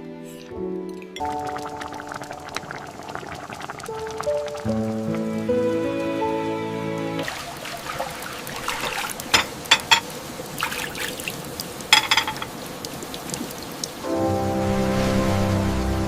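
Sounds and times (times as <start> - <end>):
soft background music: 0.0 - 7.8, 14.0 - 16.0
water trickling and dripping: 0.3 - 16.0.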